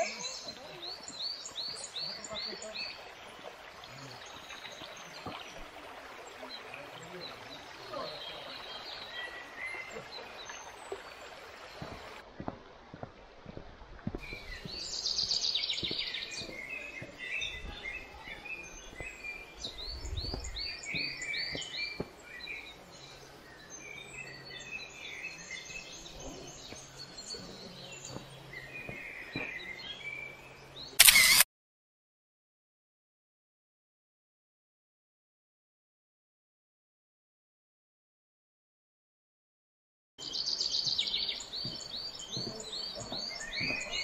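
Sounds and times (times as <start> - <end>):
birds chirping and calling: 0.0 - 3.2, 14.2 - 31.4, 40.2 - 44.0
steady outdoor hiss: 0.0 - 31.4, 40.2 - 44.0.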